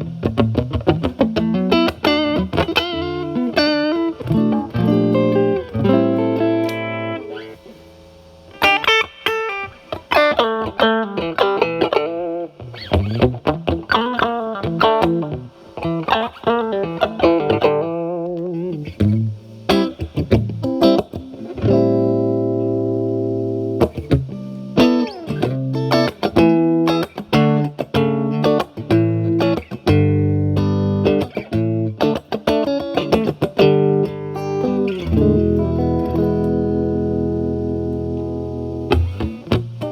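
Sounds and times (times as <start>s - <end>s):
overdriven electric guitar: 0.0s - 39.9s.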